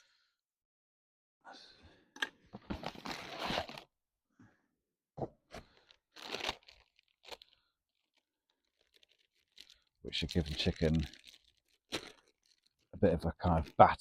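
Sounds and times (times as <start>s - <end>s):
plastic packet crinkling: 5.7s - 14.0s.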